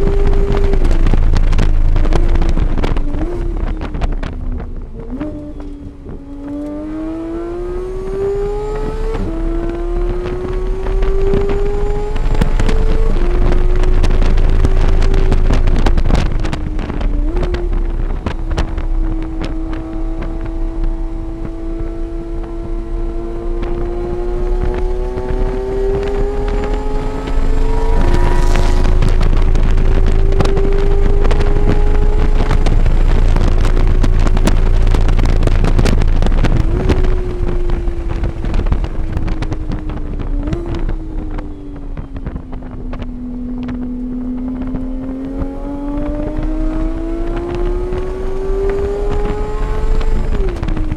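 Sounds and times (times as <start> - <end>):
racing engine accelerating: 0.0 - 50.9
wind noise on microphone: 0.0 - 50.9.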